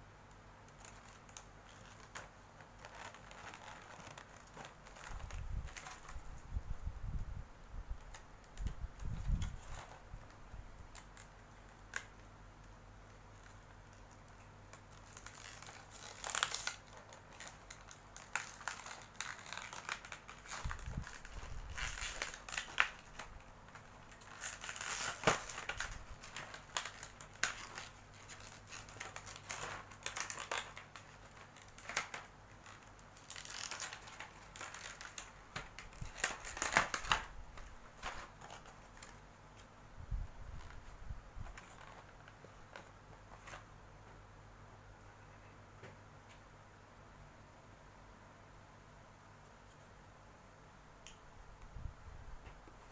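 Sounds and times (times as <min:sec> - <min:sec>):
plastic packaging crinkling: 0:00.7 - 0:06.6, 0:08.1 - 0:12.2, 0:13.1 - 0:39.3, 0:40.4 - 0:43.7.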